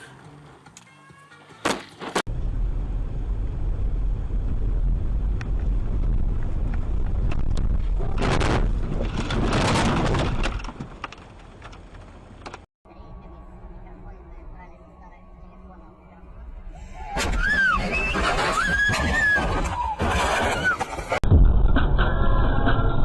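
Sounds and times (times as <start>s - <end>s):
road and engine rumble: 0.0s - 22.1s.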